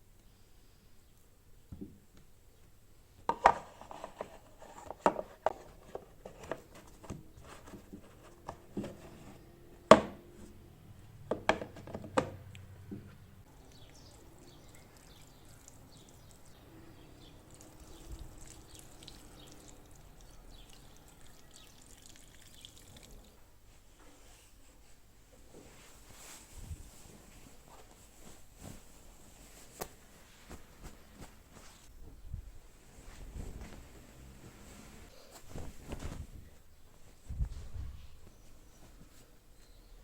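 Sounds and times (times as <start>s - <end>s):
faint steady noise: 0.0s - 40.0s
objects knocking and clattering: 3.3s - 9.2s, 11.3s - 13.0s.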